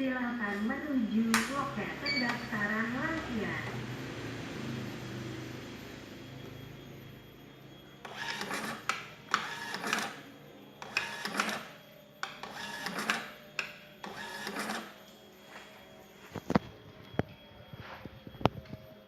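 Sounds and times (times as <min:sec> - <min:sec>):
ticket printer whirring: 0:01.3 - 0:15.6
sharp printer clicks: 0:08.1 - 0:10.2, 0:10.8 - 0:14.9.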